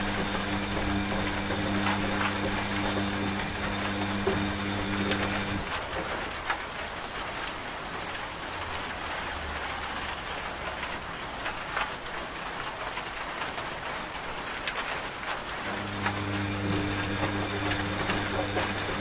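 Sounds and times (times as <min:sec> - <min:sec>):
raindrop taps: 0:00.0 - 0:07.1, 0:12.8 - 0:19.0
steady rain hiss: 0:00.0 - 0:19.0.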